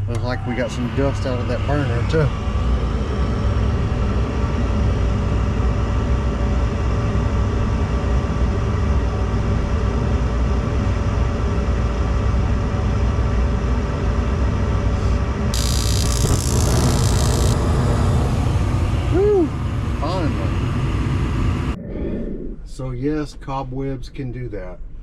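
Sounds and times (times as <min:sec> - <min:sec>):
gas furnace burner rumble: 0:00.0 - 0:07.6, 0:15.1 - 0:21.8.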